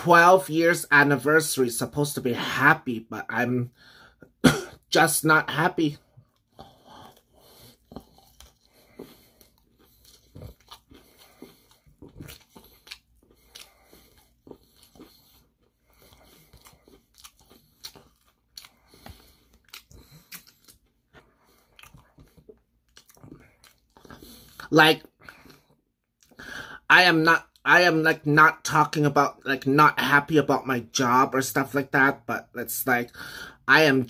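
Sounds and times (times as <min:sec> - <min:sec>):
crunching fried chicken: 0:05.4 - 0:24.6.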